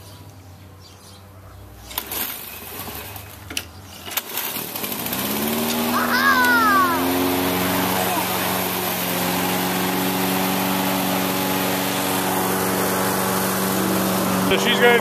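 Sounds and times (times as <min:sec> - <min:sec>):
lawn mower engine running: 0:01.7 - 0:15.0.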